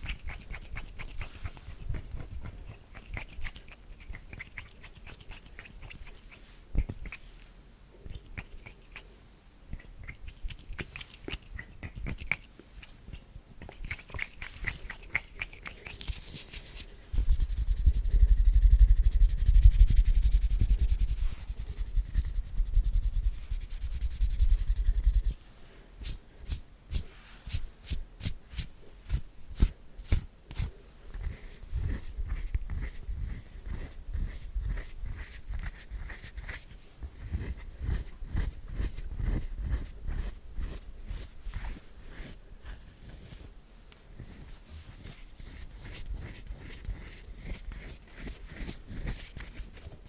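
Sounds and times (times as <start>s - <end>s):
palms rubbing together: 10.0s - 25.4s.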